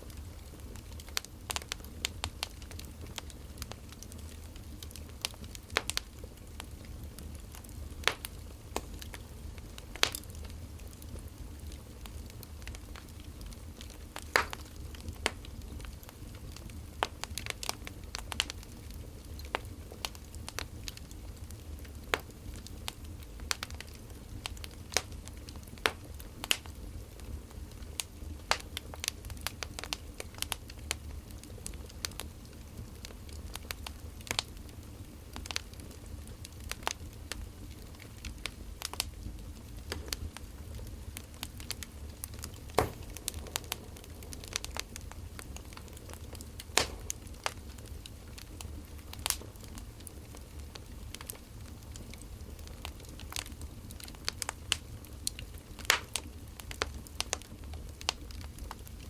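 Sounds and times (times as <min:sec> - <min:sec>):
wood fire crackling and popping: 0:00.0 - 0:59.0
low steady rumble: 0:39.5 - 0:50.6.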